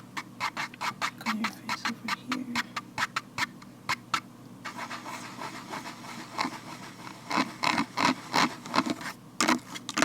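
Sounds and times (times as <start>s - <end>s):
gloved hands rubbing and scratching: 0.2s - 10.0s.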